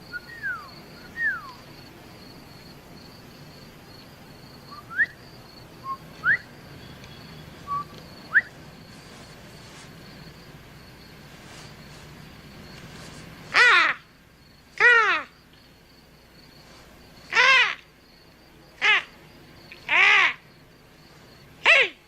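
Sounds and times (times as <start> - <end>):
whistled bird calls: 0.0 - 1.6, 4.7 - 5.2, 5.8 - 8.6
faint high insect chirring: 0.0 - 22.0.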